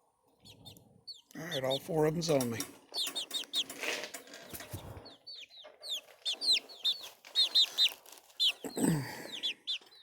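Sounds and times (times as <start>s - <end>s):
chicks peeping: 0.2s - 10.0s.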